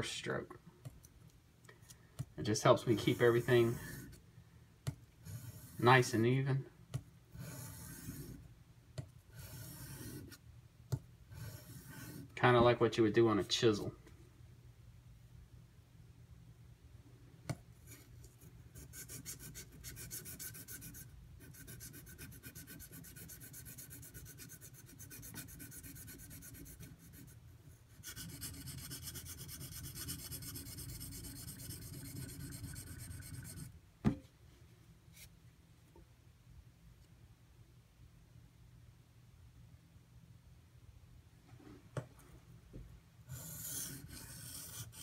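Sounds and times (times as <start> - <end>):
knife scraping on whetstone: 5.2 - 5.8, 7.4 - 8.4, 9.4 - 10.4, 11.3 - 12.3.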